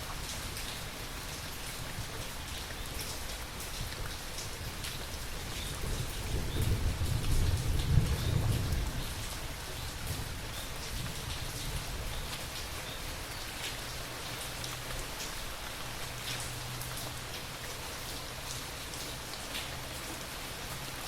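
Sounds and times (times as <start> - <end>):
raindrops pattering close by: 0.0 - 21.0
steady rain falling: 0.0 - 21.0
low thunder rumble: 5.8 - 9.3.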